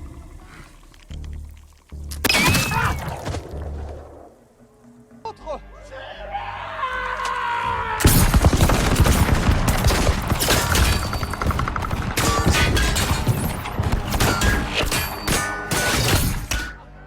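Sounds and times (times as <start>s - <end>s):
rapid gunfire: 8.0s - 14.4s.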